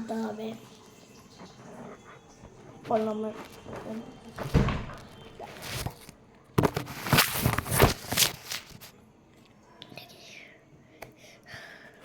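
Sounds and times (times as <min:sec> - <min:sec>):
plastic packaging rustling: 0:02.5 - 0:08.9.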